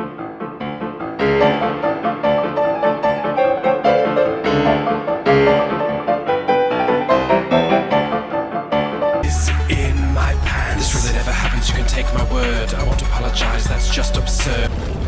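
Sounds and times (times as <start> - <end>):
fast piano run: 0.0 - 15.0.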